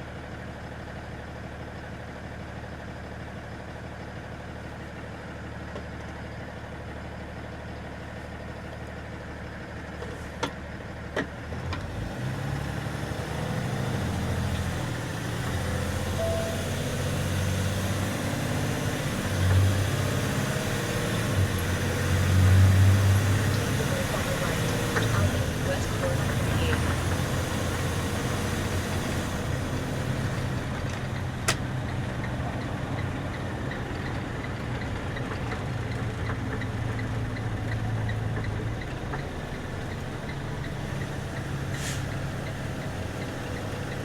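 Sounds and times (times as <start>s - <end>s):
truck engine idling: 12.7s - 44.0s.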